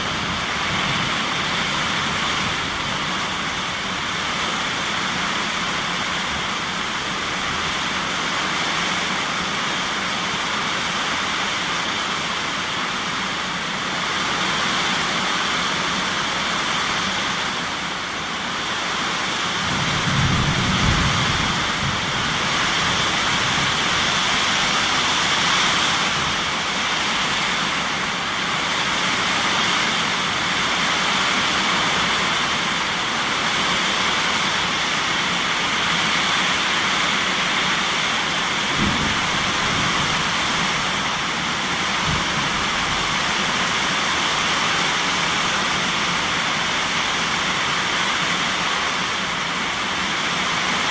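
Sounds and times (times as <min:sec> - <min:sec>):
heavy rain: 0:00.0 - 0:50.9
low rumble of thunder: 0:19.6 - 0:24.7, 0:38.6 - 0:43.6.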